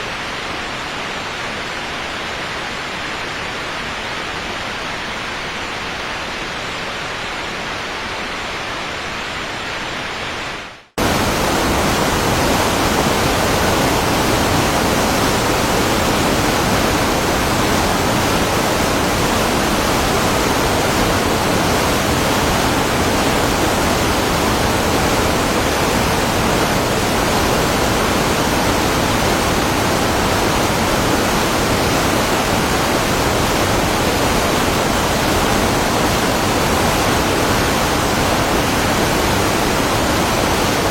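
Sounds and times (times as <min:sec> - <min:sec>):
waterfall rushing: 0:08.6 - 0:40.9.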